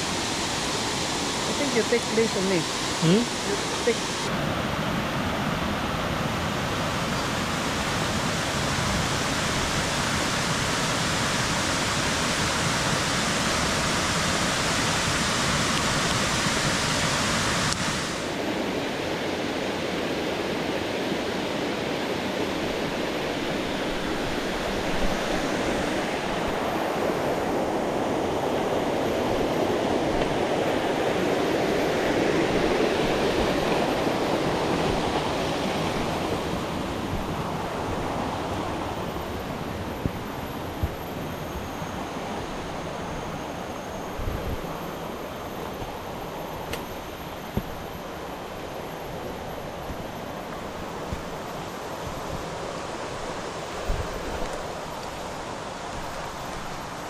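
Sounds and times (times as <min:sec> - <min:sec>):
waterfall rushing: 0:00.0 - 0:04.3.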